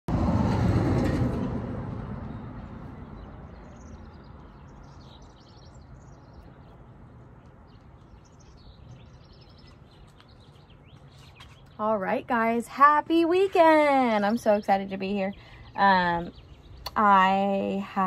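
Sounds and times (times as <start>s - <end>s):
low rumble: 0.1s - 5.0s
small birds chirping: 2.3s - 18.0s.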